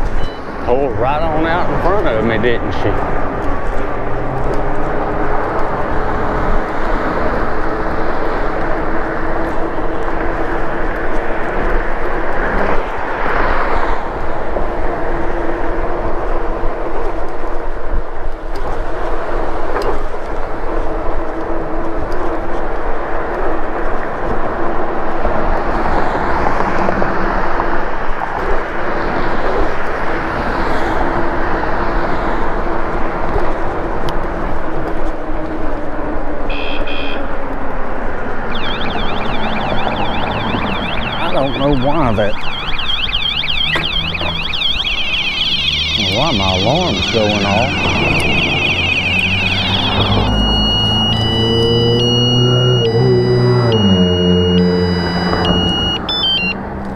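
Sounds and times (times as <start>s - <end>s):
wind and road noise: 0.0s - 56.9s
electronic alarm wailing: 36.5s - 37.4s, 38.5s - 56.6s
short high beeps: 38.5s - 56.6s.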